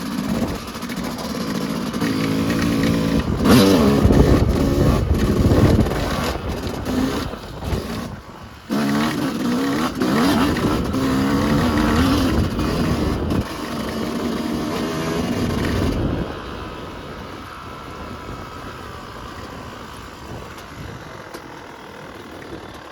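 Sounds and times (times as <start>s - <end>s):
dirt bike engine revving: 0.0s - 16.4s.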